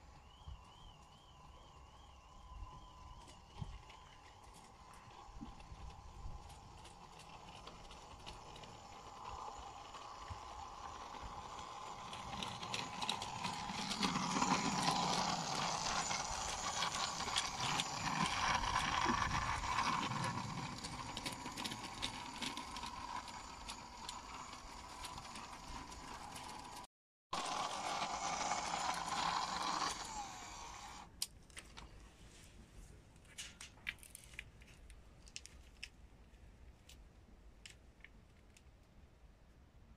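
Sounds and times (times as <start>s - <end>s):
model train motor whine: 0.0s - 31.1s
wheels clicking on rails: 0.0s - 31.1s.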